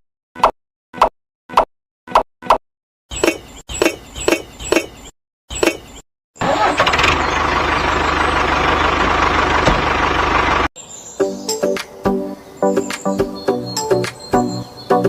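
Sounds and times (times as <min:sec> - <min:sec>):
motor running: 0:06.5 - 0:10.7.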